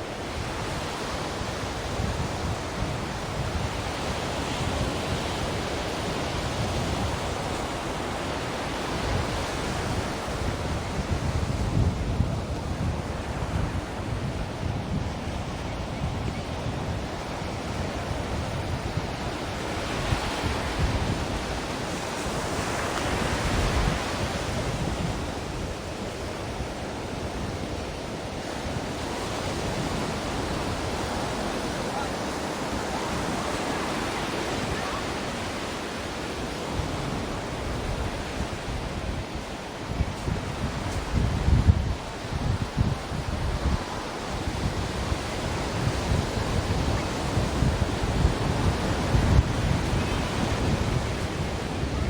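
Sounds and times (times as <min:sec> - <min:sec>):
ocean waves washing: 0:00.0 - 0:52.0
wind on microphone: 0:00.0 - 0:52.0.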